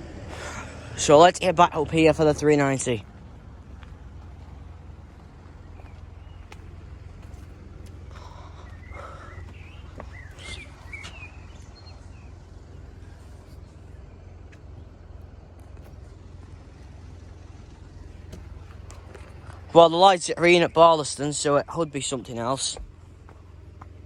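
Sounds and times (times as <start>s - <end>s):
low rumble: 0.0s - 19.8s
bird chirps: 5.5s - 7.4s, 8.0s - 15.0s.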